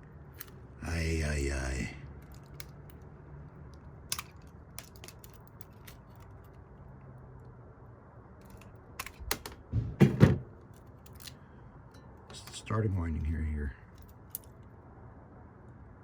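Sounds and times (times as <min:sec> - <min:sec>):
metal parts clicking and tapping: 0:02.2 - 0:06.6, 0:08.4 - 0:09.6, 0:10.7 - 0:12.4, 0:13.9 - 0:14.6
louder knocks and clunks: 0:09.4 - 0:10.5.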